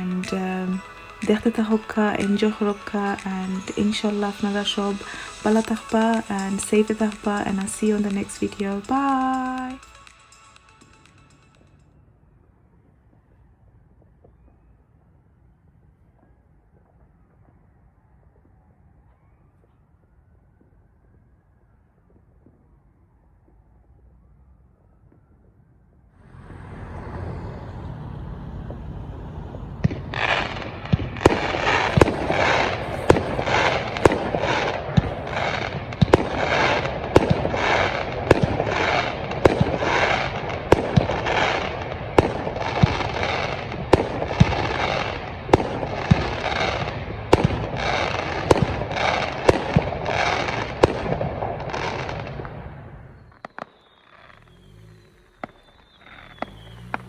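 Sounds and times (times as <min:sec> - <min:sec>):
firework bangs: 0:00.0 - 0:10.3, 0:28.4 - 0:57.0
firework crackling: 0:00.0 - 0:11.8, 0:28.4 - 0:57.0.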